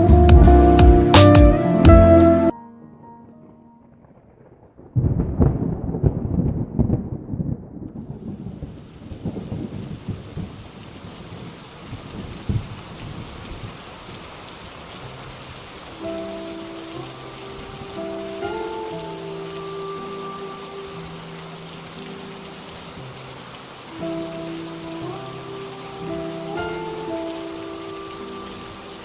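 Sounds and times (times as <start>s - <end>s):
thunder crack and rumble: 3.9s - 13.8s
steady rain: 3.9s - 29.0s.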